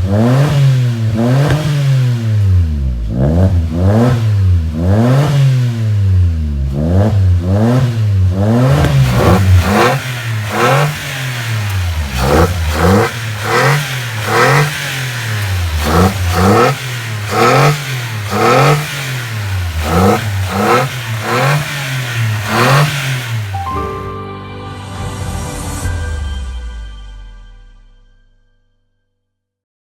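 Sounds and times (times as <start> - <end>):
car exhaust throttle blips: 0.0 - 23.6
music: 23.6 - 29.5.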